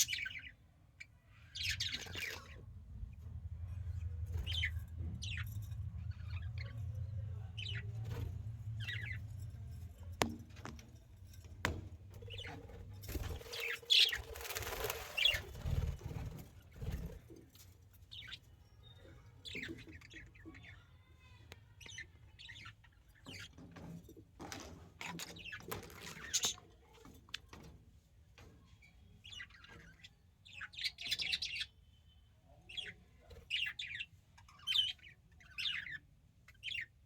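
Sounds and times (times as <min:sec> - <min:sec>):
budgies chirping: 0:00.0 - 0:03.3, 0:08.8 - 0:09.2, 0:12.2 - 0:16.7, 0:32.6 - 0:37.0.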